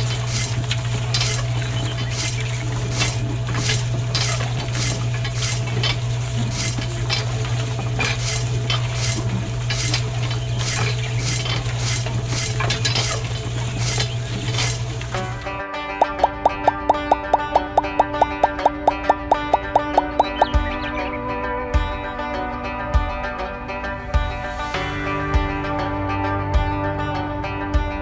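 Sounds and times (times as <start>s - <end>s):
scraping strokes: 0.0s - 15.4s
low mechanical hum: 0.0s - 15.6s
plucked-string music: 0.0s - 28.0s.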